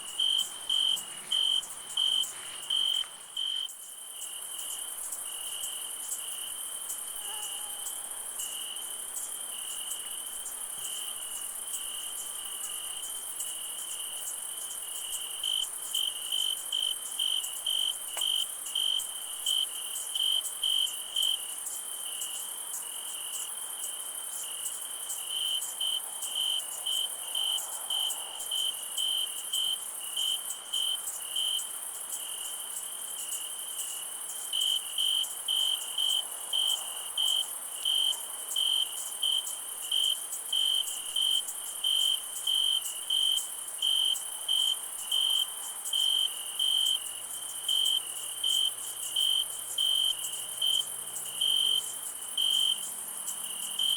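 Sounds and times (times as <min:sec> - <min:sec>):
cricket chirping loudly: 0:00.0 - 0:05.6, 0:34.6 - 0:53.9
insect trill: 0:00.0 - 0:53.9.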